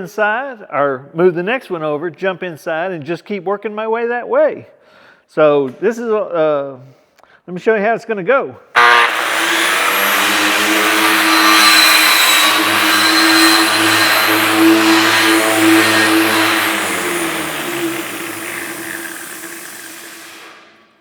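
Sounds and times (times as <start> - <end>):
power tool motor running: 8.8 - 20.9
buffing wheel abrasive hiss: 9.1 - 20.9.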